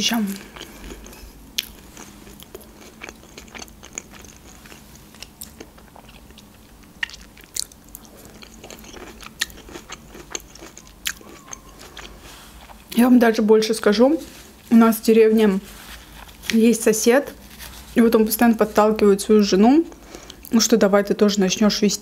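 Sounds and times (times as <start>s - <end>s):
person chewing food: 0.3s - 13.0s, 15.7s - 16.6s.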